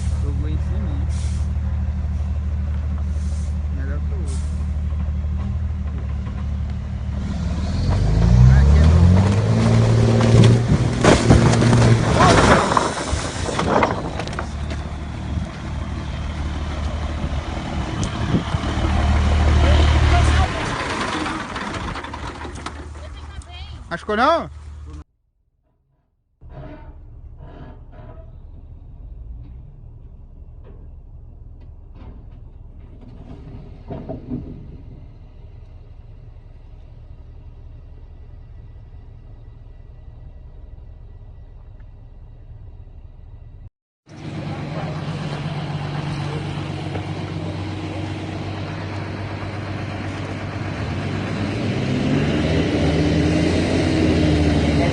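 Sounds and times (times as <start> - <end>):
truck engine running: 0.0 - 25.0, 26.7 - 54.9
loud clatter: 9.3 - 14.9, 20.2 - 23.3, 31.6 - 35.5.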